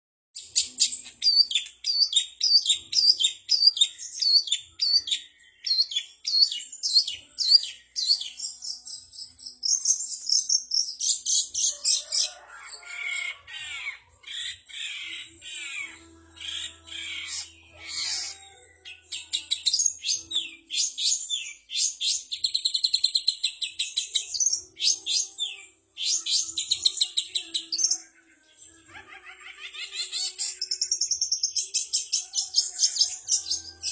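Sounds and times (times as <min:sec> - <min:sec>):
songbirds calling and singing: 0:00.4 - 0:33.9.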